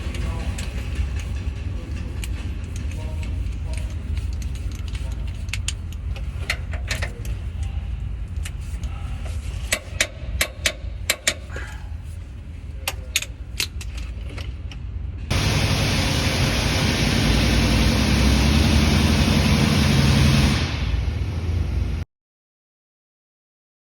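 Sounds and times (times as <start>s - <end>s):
low rumble: 11.8s - 22.0s
loud steady engine noise: 15.3s - 22.0s.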